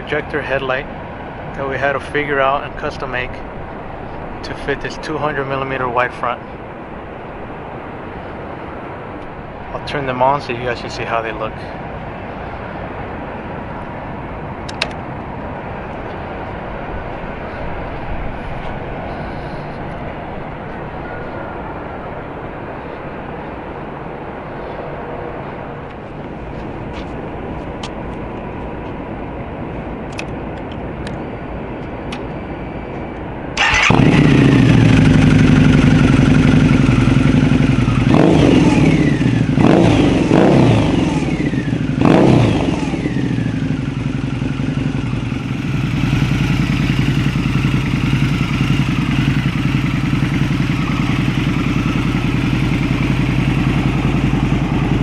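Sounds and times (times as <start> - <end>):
motorcycle engine revving and idling: 33.6 - 55.0.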